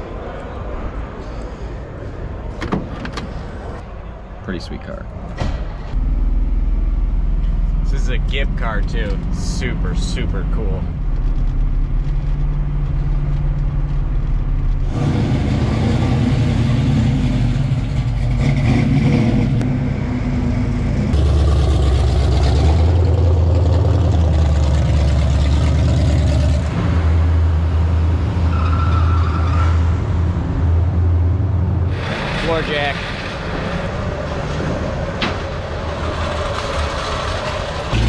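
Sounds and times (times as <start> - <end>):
car engines running: 0.0 - 38.0.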